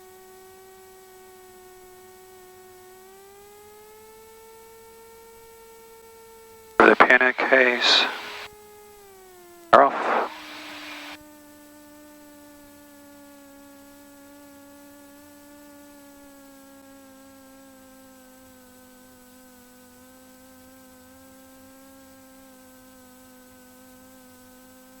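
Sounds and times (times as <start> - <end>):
short burst of noise: 6.8 - 8.5, 9.8 - 11.2.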